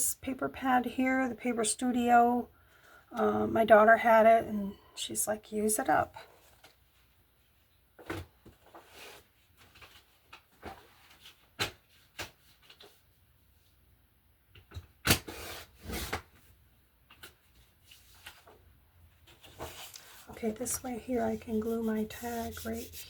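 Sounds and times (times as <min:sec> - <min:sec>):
paper rustle: 0:08.0 - 0:13.1, 0:17.1 - 0:18.6, 0:19.2 - 0:23.0.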